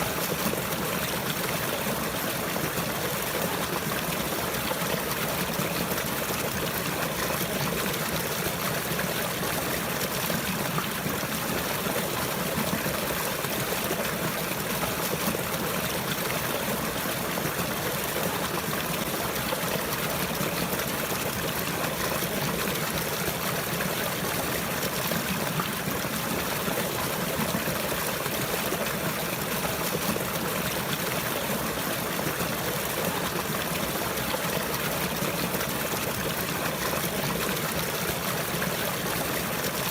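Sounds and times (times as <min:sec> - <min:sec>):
flowing trickling water: 0:00.0 - 0:39.9.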